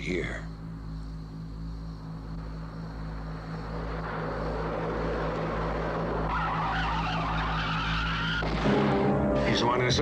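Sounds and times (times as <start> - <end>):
low steady hum: 0.0 - 10.0
car tyres screeching: 3.6 - 9.7.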